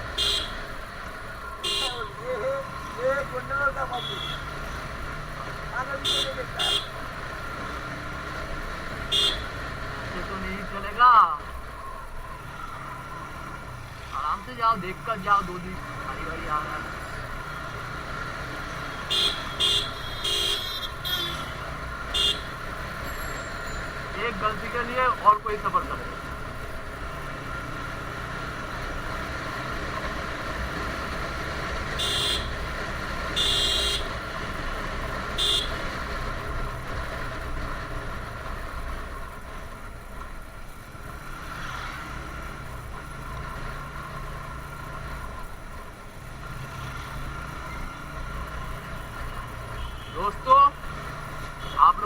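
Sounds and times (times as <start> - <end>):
motorcycle engine and road noise: 0.0 - 52.0
vehicle horn beeps: 0.1 - 0.6, 1.6 - 2.2, 3.9 - 4.5, 6.0 - 7.0, 9.1 - 9.5, 19.0 - 22.6, 32.0 - 32.6, 33.3 - 34.2, 35.4 - 35.8, 49.8 - 50.3, 51.6 - 51.9.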